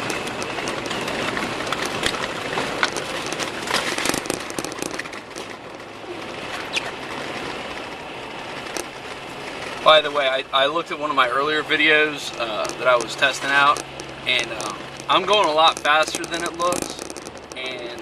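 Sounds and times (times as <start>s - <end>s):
tyres and engine rumble: 0.0s - 18.0s
short clicks and ticks: 12.3s - 18.0s.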